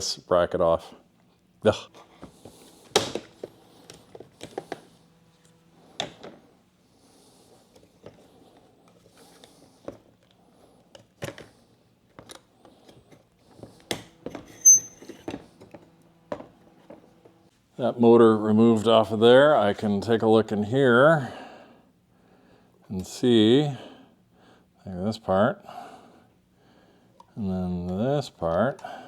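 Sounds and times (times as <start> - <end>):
short high squeak: 14.5 - 15.2.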